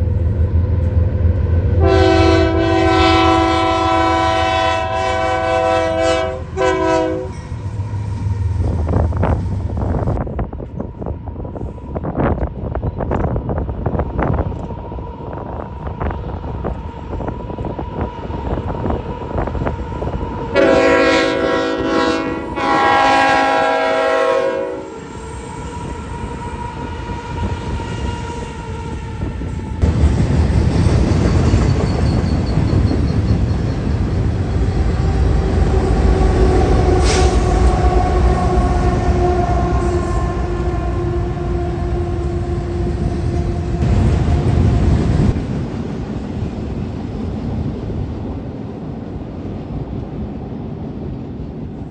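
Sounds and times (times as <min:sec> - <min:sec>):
train rumbling past: 0:00.0 - 0:51.9
locomotive air horn blasts: 0:01.7 - 0:07.4, 0:20.5 - 0:28.8, 0:35.0 - 0:45.0.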